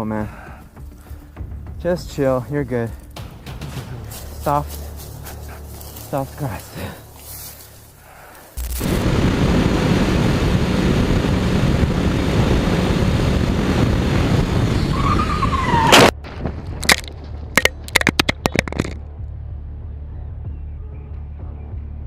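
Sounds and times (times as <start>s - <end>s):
motorcycle riding at speed: 8.7s - 16.9s
wind on microphone: 8.8s - 15.8s
sharp cracks and scrapes: 15.9s - 19.0s.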